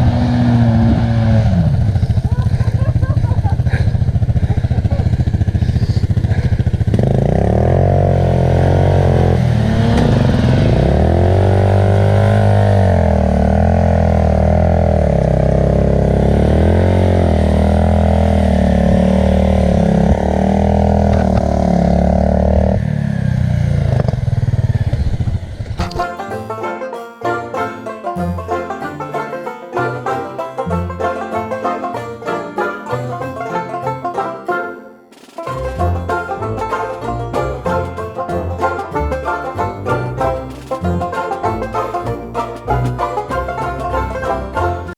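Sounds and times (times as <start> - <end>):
banjo music: 0.0 - 21.5, 25.8 - 44.9
motorcycle engine revving: 0.0 - 26.0.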